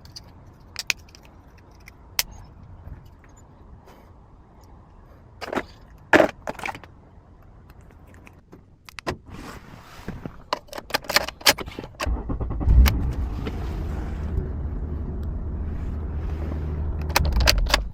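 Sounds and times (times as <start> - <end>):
car engine starting and idling: 11.8 - 17.9.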